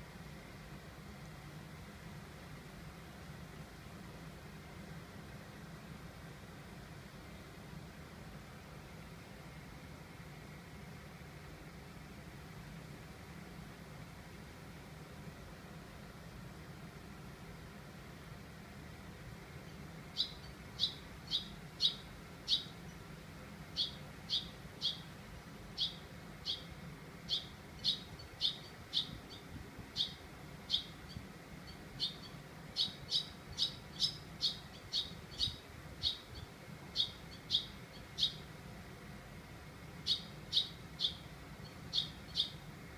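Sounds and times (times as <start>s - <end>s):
bird chirping: 20.1s - 23.0s, 23.7s - 25.1s, 25.7s - 38.5s, 40.0s - 42.7s.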